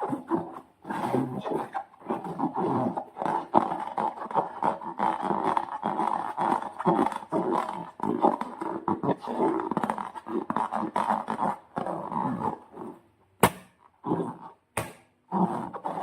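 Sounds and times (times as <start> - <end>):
slime squelching and crackling: 0.0 - 13.0
slime sharp crack: 14.8 - 15.2.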